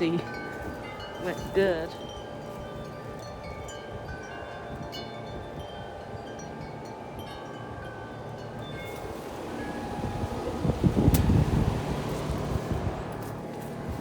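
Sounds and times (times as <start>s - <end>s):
large wind chimes ringing: 0.0s - 14.0s
wind rumbling on microphone: 8.5s - 14.0s.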